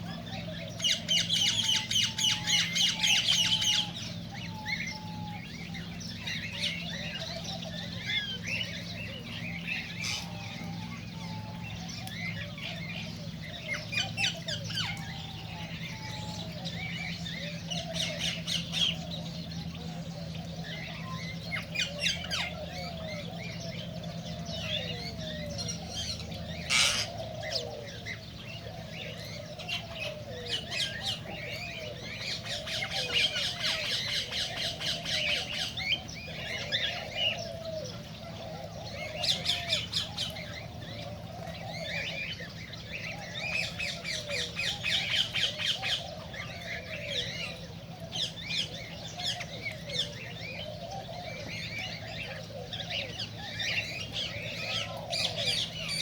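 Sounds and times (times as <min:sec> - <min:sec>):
cockatiels chirping and squawking: 0:20.2 - 0:56.0.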